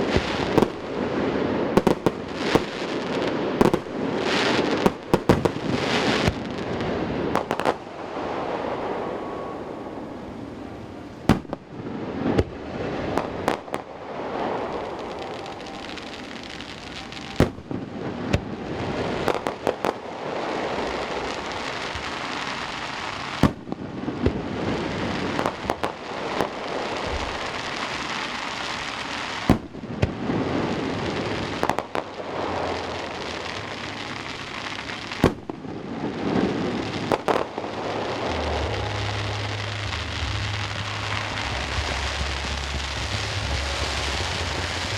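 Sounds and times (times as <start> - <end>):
fireworks bangs: 0.0 - 44.9
fireworks crackling: 0.0 - 44.9
rumbling echo: 35.4 - 44.9.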